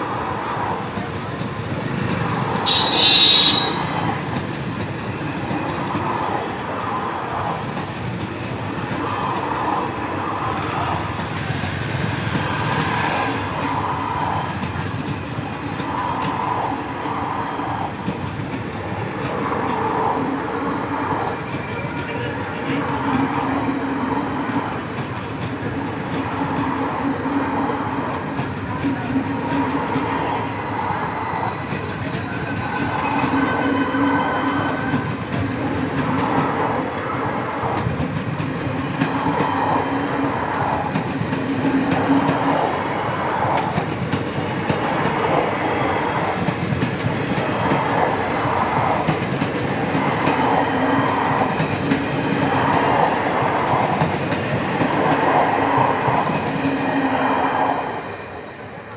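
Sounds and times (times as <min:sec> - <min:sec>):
train wheels clattering over rail joints: 0:31.4 - 0:57.1.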